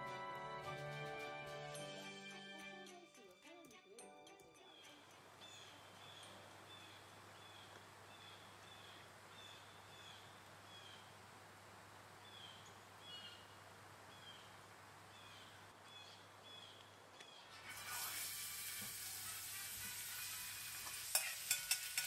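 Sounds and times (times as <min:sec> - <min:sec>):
small bird chirping: 0:04.6 - 0:11.0
quiet background hiss: 0:04.7 - 0:19.1.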